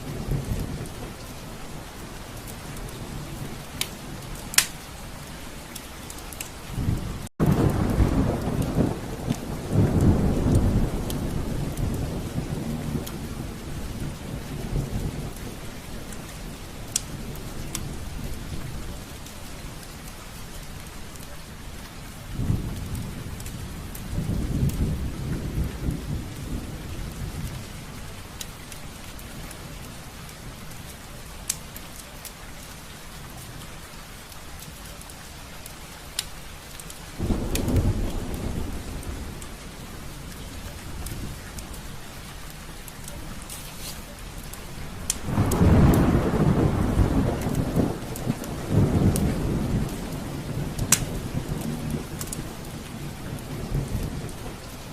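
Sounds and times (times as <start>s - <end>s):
rain on a window: 0.0s - 54.9s
raindrop taps: 3.7s - 4.9s, 5.7s - 12.2s, 13.0s - 13.2s, 16.9s - 18.0s, 34.3s - 39.6s, 40.3s - 54.8s
distant thunder rolls: 37.2s - 41.8s, 44.8s - 54.9s.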